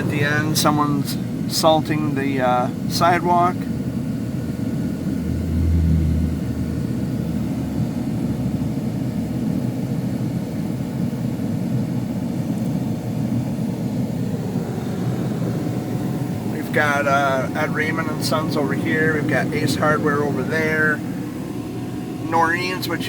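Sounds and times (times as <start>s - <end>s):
vehicle rumble from inside cabin: 3.9s - 10.7s.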